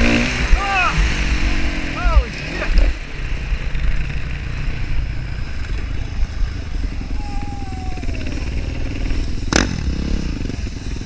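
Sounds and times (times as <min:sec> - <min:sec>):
motocross bike engine running: 0:00.0 - 0:11.0
faint tone dropping in pitch: 0:05.7 - 0:09.1.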